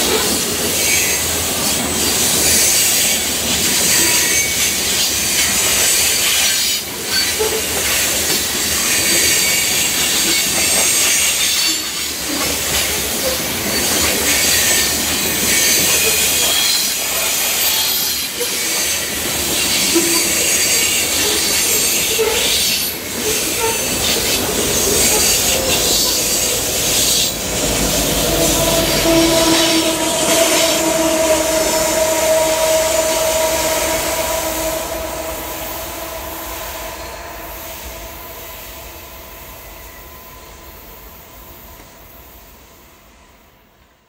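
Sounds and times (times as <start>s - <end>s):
diesel locomotives passing: 0.0s - 44.0s
freight cars rumbling past: 24.4s - 38.7s.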